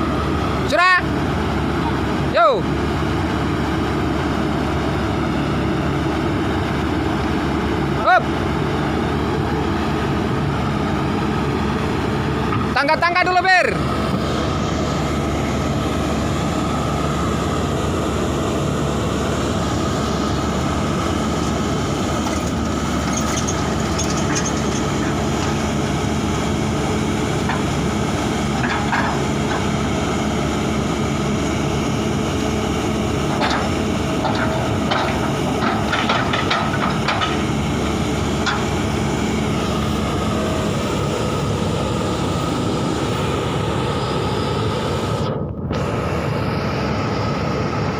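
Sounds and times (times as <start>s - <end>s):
heavy diesel engine running: 0.0s - 47.9s
metallic squeaks and clicks: 22.4s - 24.9s.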